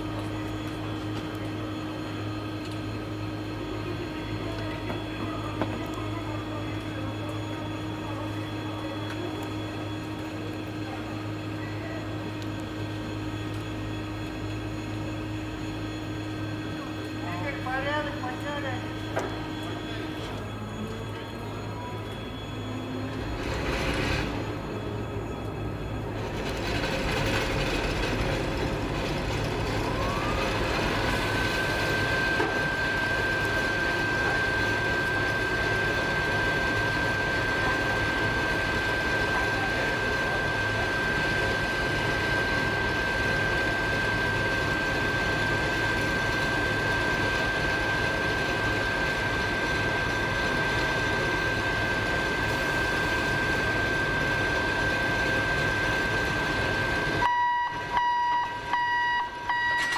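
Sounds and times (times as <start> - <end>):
railway machinery humming: 0.0 - 59.9
rising whine: 19.0 - 59.9.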